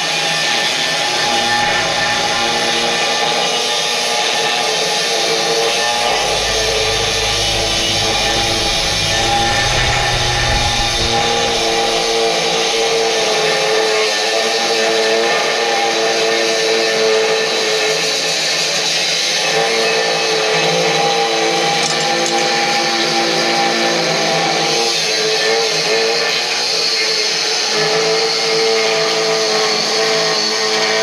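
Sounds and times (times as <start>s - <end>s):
power tool whining: 0.9s - 13.9s.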